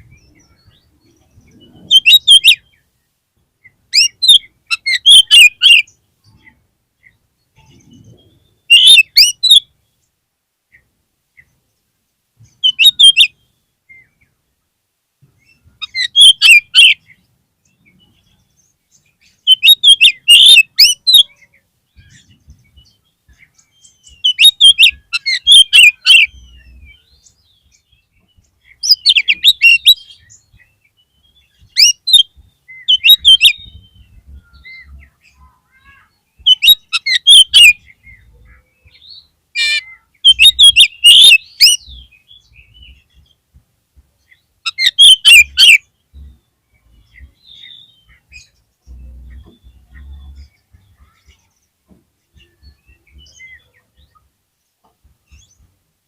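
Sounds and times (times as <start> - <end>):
bird singing chirps and whistles: 0.0 - 2.8, 3.9 - 6.0, 7.6 - 9.7, 12.5 - 14.2, 15.4 - 17.1, 17.7 - 35.2, 36.4 - 43.1, 44.7 - 50.6.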